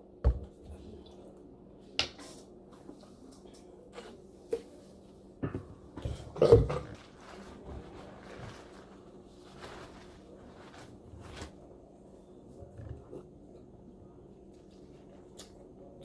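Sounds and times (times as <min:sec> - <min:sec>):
eating and table noises: 0:00.6 - 0:16.0
clatter and rustle: 0:06.0 - 0:11.6.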